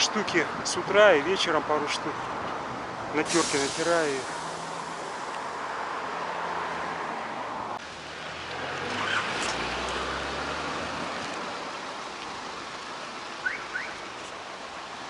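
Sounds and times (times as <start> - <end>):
outdoor noise: 0.0 - 15.0
car passing by: 3.2 - 14.9.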